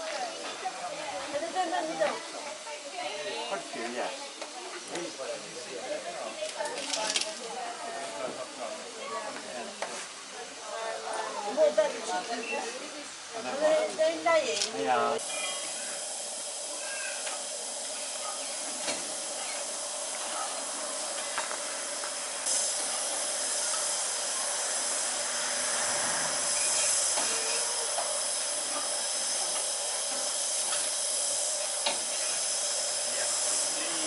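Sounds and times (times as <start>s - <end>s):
steam locomotive hissing: 13.2s - 34.0s.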